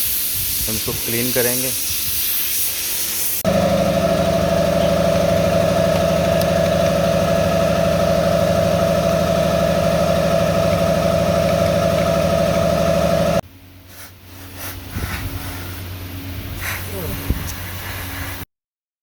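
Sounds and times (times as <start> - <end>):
motor humming: 3.4 - 13.4.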